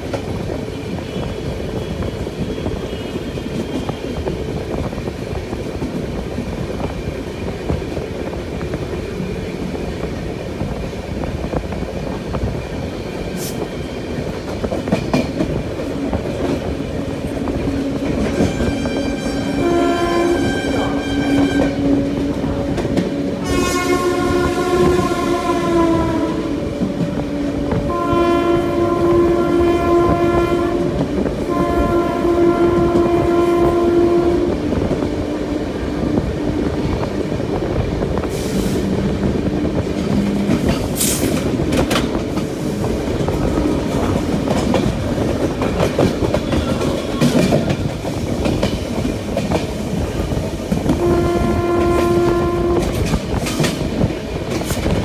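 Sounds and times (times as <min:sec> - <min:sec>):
train coach rumbling on track: 0:00.0 - 0:55.0
train horn blasts: 0:17.5 - 0:35.4, 0:50.9 - 0:53.6.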